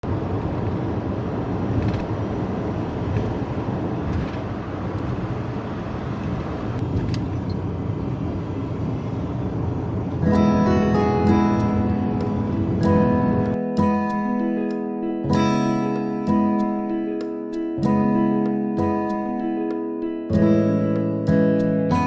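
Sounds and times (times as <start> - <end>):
vehicle rumbling on road: 0.0 - 10.2.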